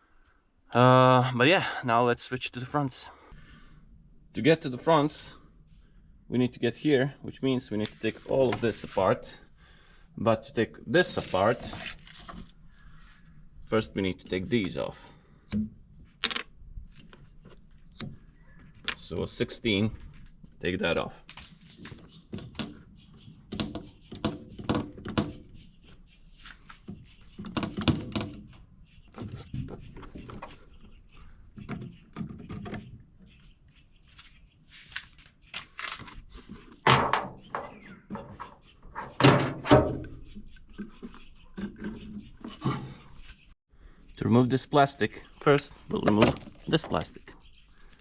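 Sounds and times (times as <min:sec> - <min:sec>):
car parts clunking: 0:36.7 - 0:43.0.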